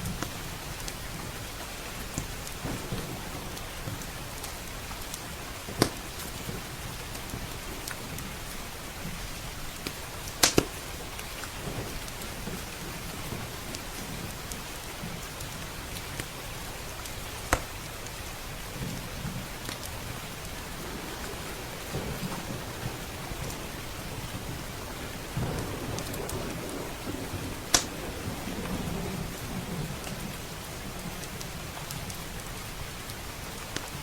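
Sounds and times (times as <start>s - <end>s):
steady rain: 0.0s - 34.0s
wood fire crackling: 0.0s - 34.0s
logs popping: 9.8s - 10.8s.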